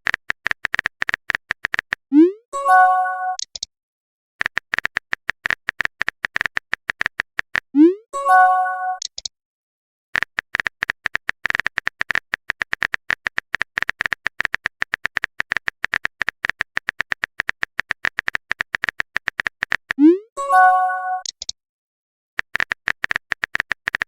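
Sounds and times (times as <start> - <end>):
phone keyboard typing clicks: 0.0 - 2.0, 4.4 - 7.7, 10.2 - 20.0, 21.1 - 21.6, 22.4 - 24.0
incoming message chime: 2.2 - 3.4, 7.8 - 9.0, 20.4 - 21.3.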